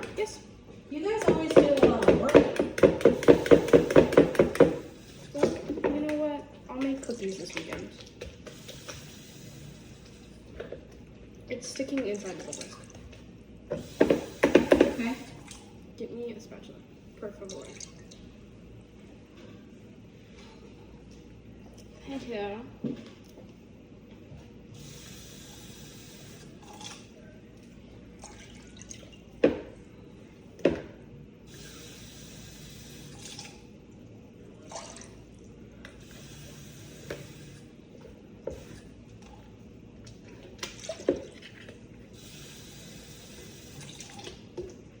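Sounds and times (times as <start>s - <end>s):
water running from tap: 1.1s - 10.3s, 13.8s - 15.6s, 31.5s - 33.6s, 42.2s - 44.5s.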